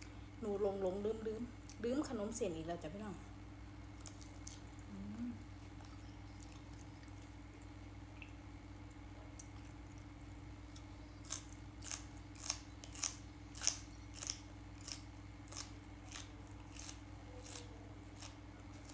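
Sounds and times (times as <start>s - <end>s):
low steady hum: 0.0s - 18.9s
crisp chewing crunches: 3.9s - 7.7s, 8.9s - 18.9s.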